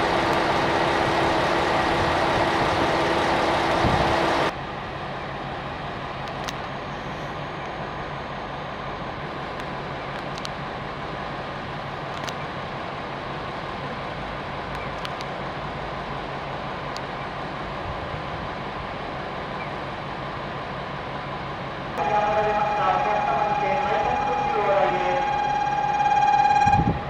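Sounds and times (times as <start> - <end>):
train running: 0.0 - 27.0
station signal tones: 22.0 - 27.0.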